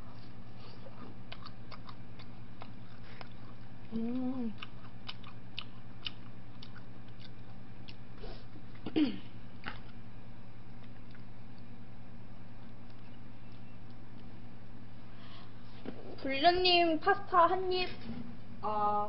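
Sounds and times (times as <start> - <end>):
steady electrical hum: 0.0 - 19.0
chewing with mouth clicks: 0.2 - 8.9, 9.6 - 10.0, 10.6 - 11.8, 12.5 - 14.8
person humming mm: 3.9 - 4.7.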